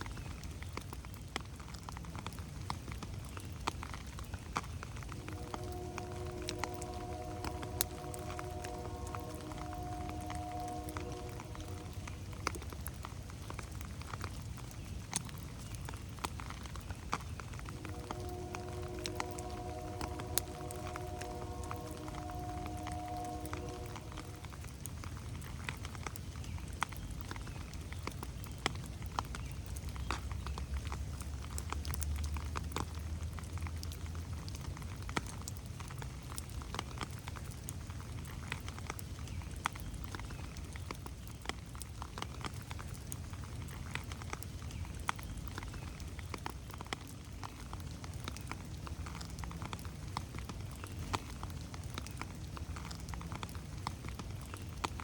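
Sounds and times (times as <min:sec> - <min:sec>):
rain pattering on leaves: 0:00.0 - 0:55.0
soft low rumble: 0:04.6 - 0:14.3, 0:17.2 - 0:26.0.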